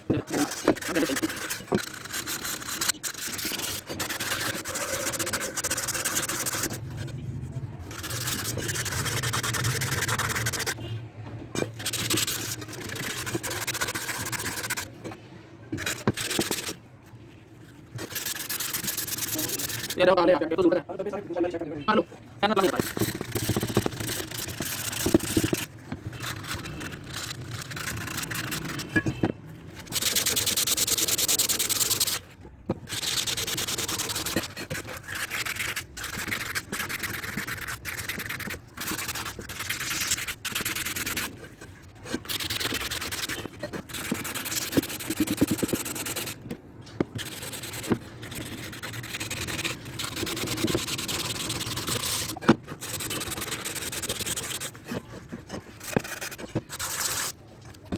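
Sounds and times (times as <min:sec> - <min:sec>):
hand rubbing engine cover: 0:22.6 - 0:32.1.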